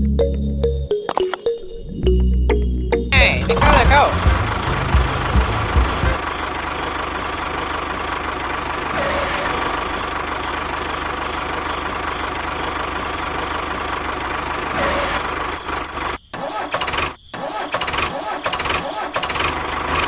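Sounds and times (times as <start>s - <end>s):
small motor pulsing rattle: 7.4s - 20.0s.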